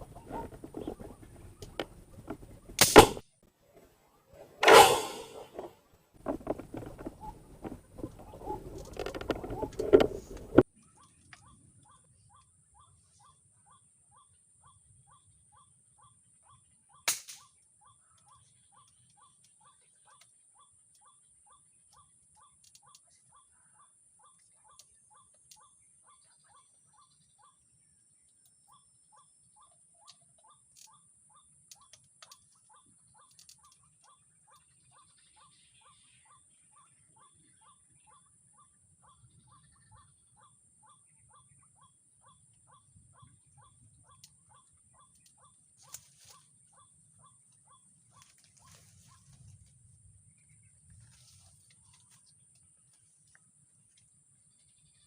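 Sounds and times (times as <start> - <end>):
sharp click: 2.8 - 3.2, 17.1 - 17.5.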